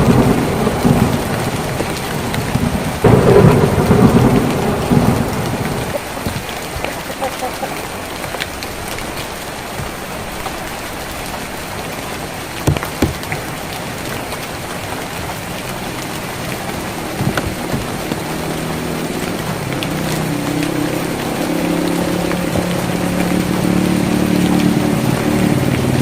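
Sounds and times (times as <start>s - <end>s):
rain on a tin roof: 0.0s - 26.0s
low engine hum: 12.4s - 26.0s
drip knocks: 12.6s - 13.4s.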